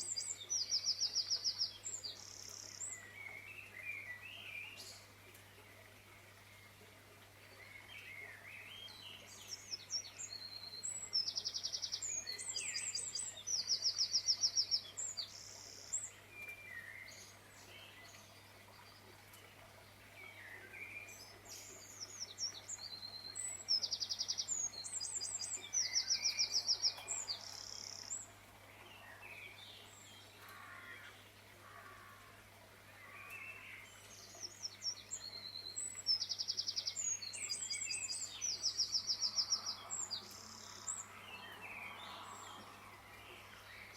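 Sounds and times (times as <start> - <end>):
bird chirps and trills: 7.6 - 28.3.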